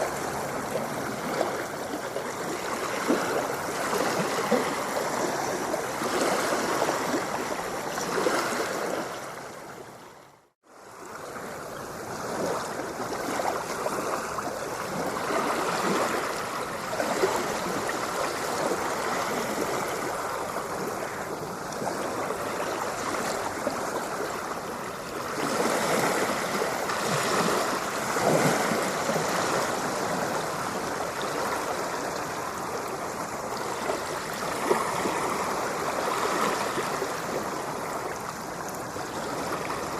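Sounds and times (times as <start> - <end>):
ocean surf washing: 0.0 - 39.9.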